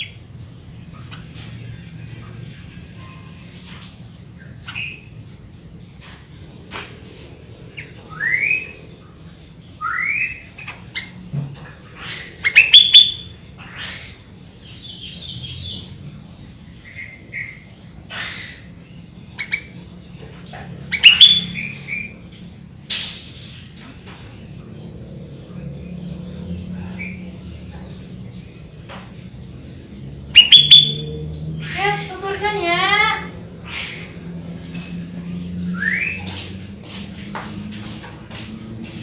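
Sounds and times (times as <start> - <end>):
bulbul singing whistles and chirps: 30.4 - 31.5.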